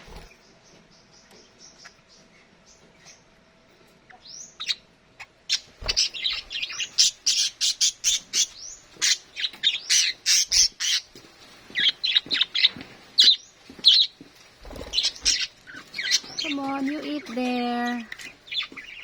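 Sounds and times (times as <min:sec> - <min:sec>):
budgerigars chattering and squawking: 0:04.1 - 0:19.0.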